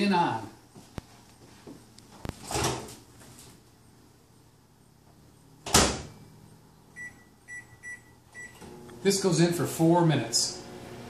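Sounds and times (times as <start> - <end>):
keypad beep: 7.0 - 8.6.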